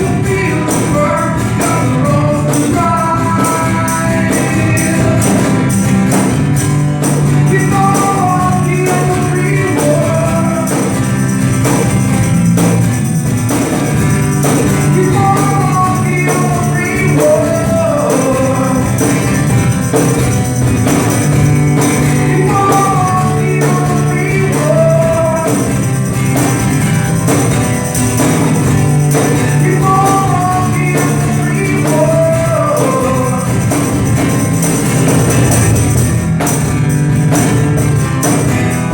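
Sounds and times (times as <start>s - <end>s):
person singing: 0.0s - 5.9s, 7.3s - 11.6s, 14.4s - 20.0s, 21.8s - 26.2s, 29.0s - 34.4s
band playing a song: 0.0s - 38.9s.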